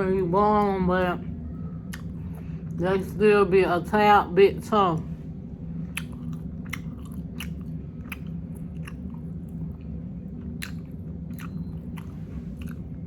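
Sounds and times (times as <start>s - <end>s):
low hum: 0.0s - 13.0s
person chewing with smacking: 5.9s - 13.0s.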